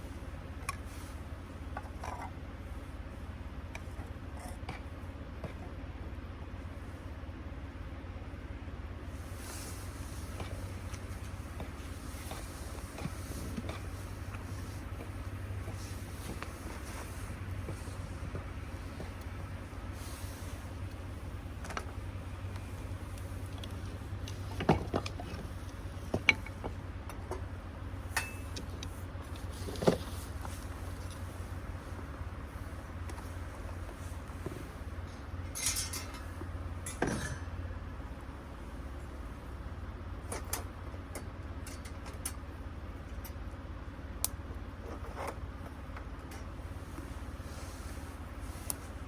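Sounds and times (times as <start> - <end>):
steady low hum: 0.0 - 49.0
metallic clink: 28.2 - 28.5, 35.5 - 36.2.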